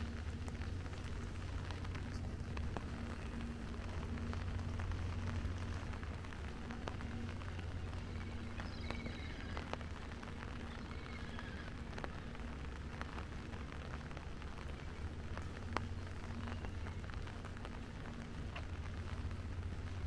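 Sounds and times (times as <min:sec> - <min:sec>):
steady low hum: 0:00.0 - 0:10.7
rain falling: 0:00.0 - 0:20.0.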